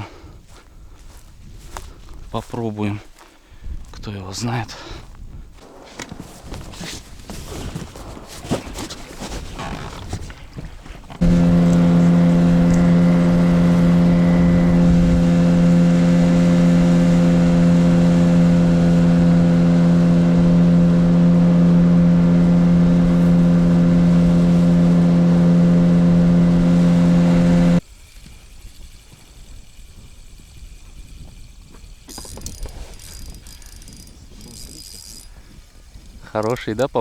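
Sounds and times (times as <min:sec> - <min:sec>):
outboard motor running: 0:11.1 - 0:27.8, 0:31.6 - 0:35.4.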